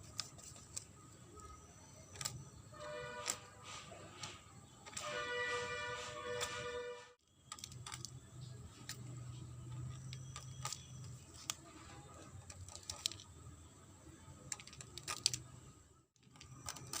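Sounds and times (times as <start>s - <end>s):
chalk clicking and cracking: 0.0s - 6.8s, 7.4s - 13.4s, 14.5s - 15.5s, 16.2s - 17.0s.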